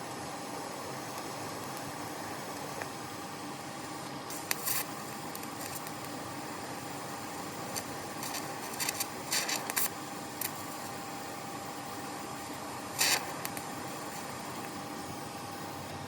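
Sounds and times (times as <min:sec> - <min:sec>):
welder electrical hum: 0:00.0 - 0:16.0
welding hissing bursts: 0:04.3 - 0:11.0, 0:12.8 - 0:14.5.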